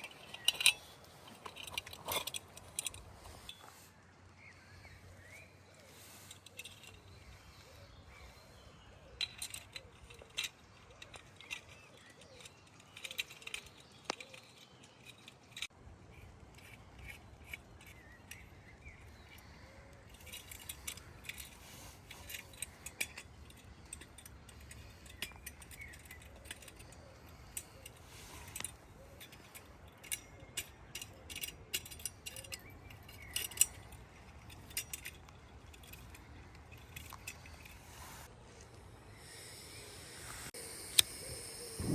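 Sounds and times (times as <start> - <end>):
faint bird chirps: 3.4 - 15.6.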